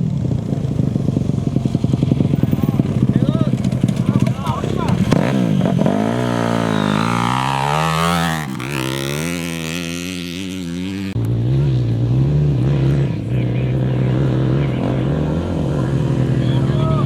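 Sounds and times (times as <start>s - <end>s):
racing engine revving past: 0.1s - 17.0s.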